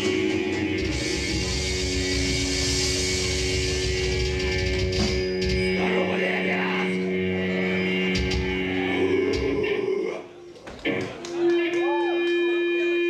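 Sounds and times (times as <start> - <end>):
rock band playing live: 0.0 - 9.9.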